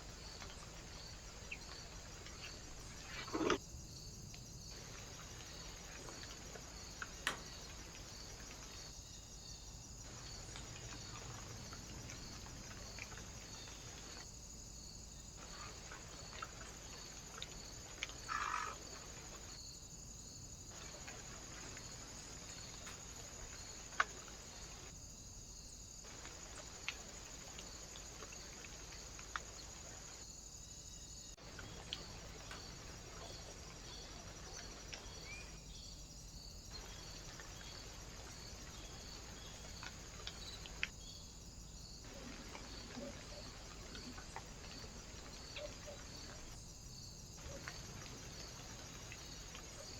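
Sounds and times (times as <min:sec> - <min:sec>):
faint ticks: 0:04.2 - 0:08.9, 0:20.7 - 0:24.9, 0:26.1 - 0:30.2, 0:31.4 - 0:33.3, 0:36.7 - 0:41.0
steady hiss: 0:15.4 - 0:30.3.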